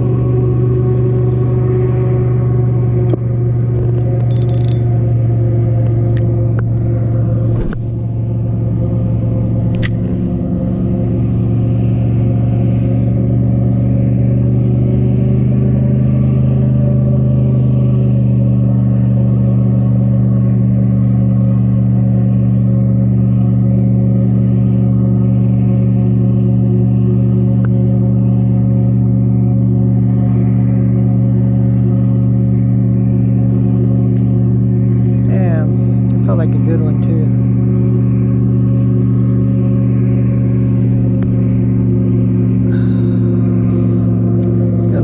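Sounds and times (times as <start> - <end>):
steady low motor drone: 0.0 - 45.0
small clicks and knocks: 4.0 - 4.8.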